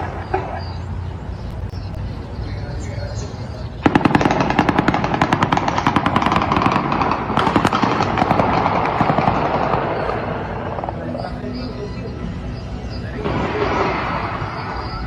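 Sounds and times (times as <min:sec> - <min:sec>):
rapid gunfire: 0:03.8 - 0:11.4.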